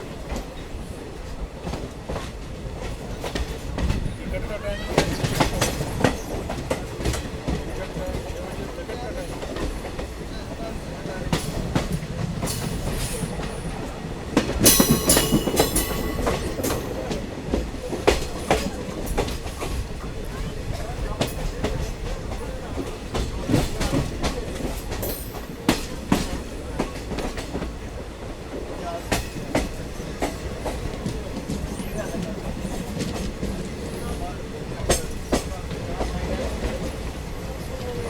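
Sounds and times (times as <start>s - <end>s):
train rumbling along track: 0.0s - 38.0s
wheels clacking over rail joints: 0.0s - 38.0s.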